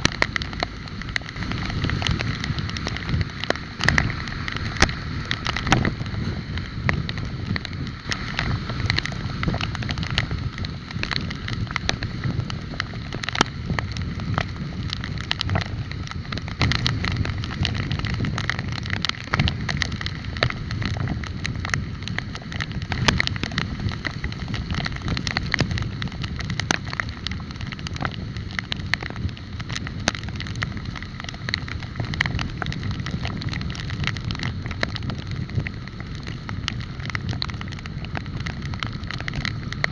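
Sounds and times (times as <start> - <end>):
bike rattling and clicking: 0.0 - 39.9
wind rumble on microphone: 0.0 - 39.9.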